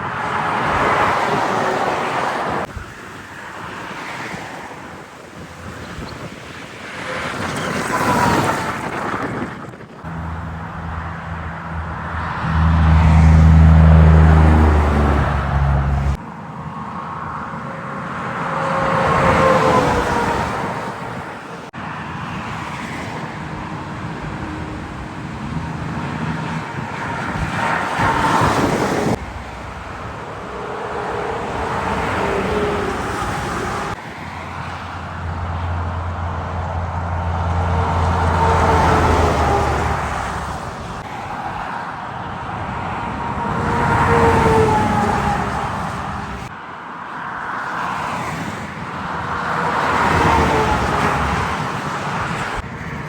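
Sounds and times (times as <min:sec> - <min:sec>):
highway traffic passing: 0:00.0 - 0:53.0
truck engine drone: 0:10.1 - 0:16.2, 0:29.2 - 0:40.5.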